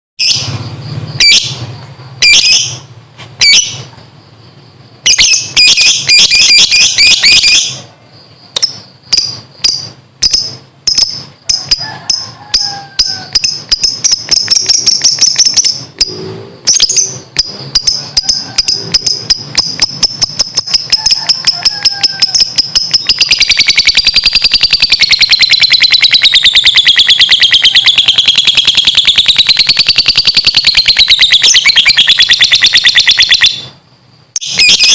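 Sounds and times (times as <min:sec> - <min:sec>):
lovebird chirping and trilling: 0:00.2 - 0:03.9, 0:05.0 - 0:33.8, 0:34.4 - 0:34.9.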